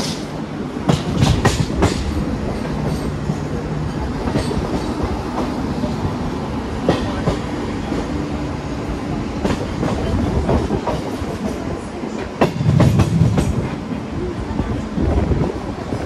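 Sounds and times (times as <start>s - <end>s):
train rumbling on tracks: 0.0s - 16.0s.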